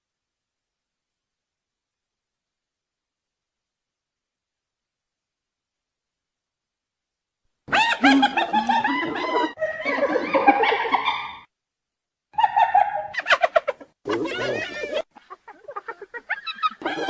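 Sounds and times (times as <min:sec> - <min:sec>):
hyena calling: 0:07.7 - 0:11.4, 0:12.4 - 0:17.0.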